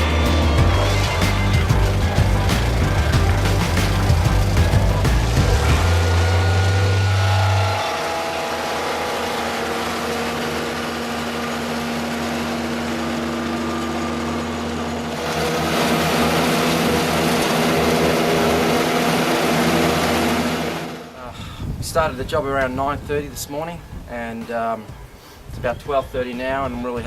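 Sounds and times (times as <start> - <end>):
woodchipper engine running: 0.0 - 21.2.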